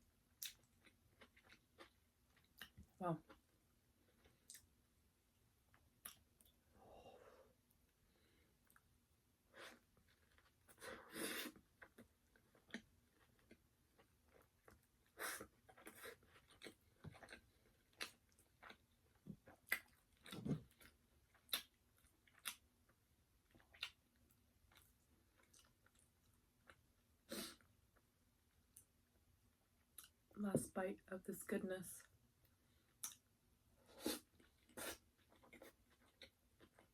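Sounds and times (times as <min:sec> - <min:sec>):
chewing fried chicken: 0:00.4 - 0:03.5, 0:11.5 - 0:27.0, 0:34.1 - 0:36.9.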